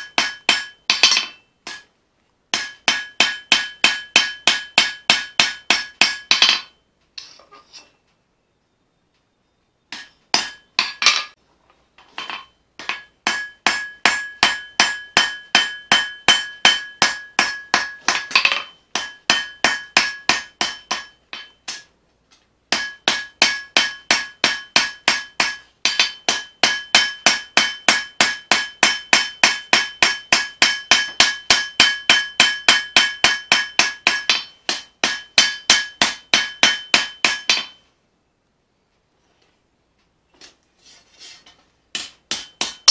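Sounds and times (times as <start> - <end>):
hammer beating steel on anvil: 0.0 - 6.8, 9.9 - 11.4, 12.2 - 21.9, 22.7 - 37.9, 41.9 - 42.9.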